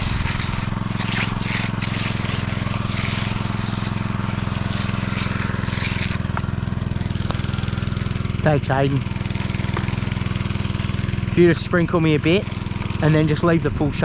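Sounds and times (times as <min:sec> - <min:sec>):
short scraping sounds: 0:00.0 - 0:07.1
engine running steadily: 0:00.0 - 0:14.0.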